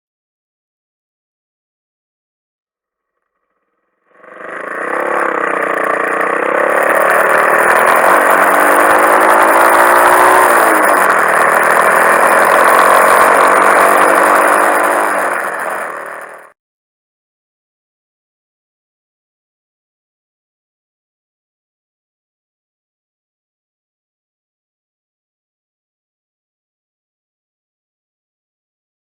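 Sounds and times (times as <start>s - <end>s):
motorcycle engine running: 3.2s - 16.6s.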